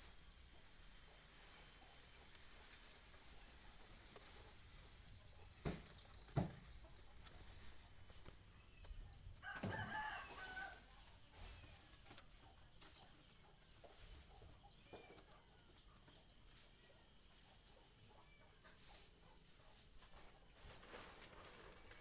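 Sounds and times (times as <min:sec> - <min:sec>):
rooster crowing: 0:09.4 - 0:11.2.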